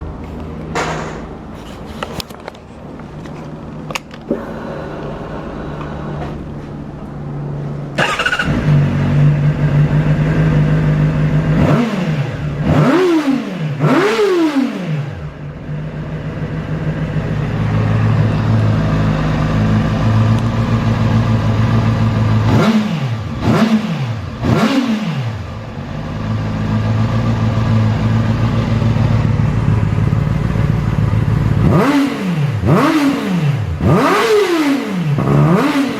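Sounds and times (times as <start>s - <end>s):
motorcycle engine revving: 7.9s - 35.9s
motorcycle engine idling: 8.0s - 11.6s, 15.2s - 22.6s, 25.4s - 32.9s.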